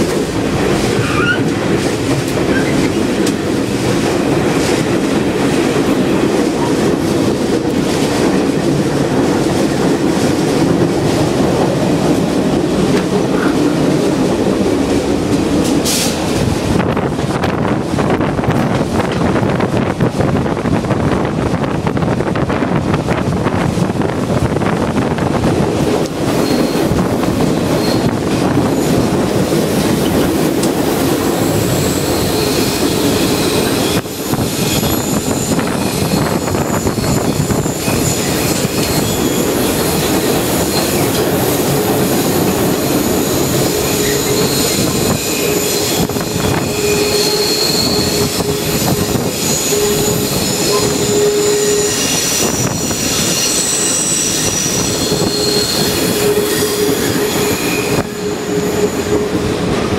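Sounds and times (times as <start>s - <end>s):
diesel train running: 0.0s - 59.9s
train wheel squeal: 0.9s - 1.6s, 2.4s - 3.0s, 26.3s - 29.2s, 29.8s - 59.7s.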